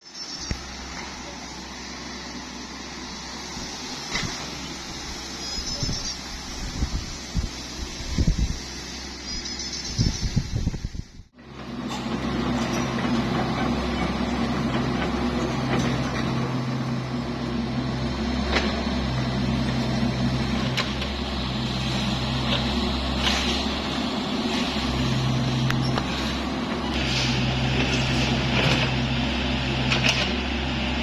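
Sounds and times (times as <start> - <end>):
diesel engine running under load: 0.0 - 31.0.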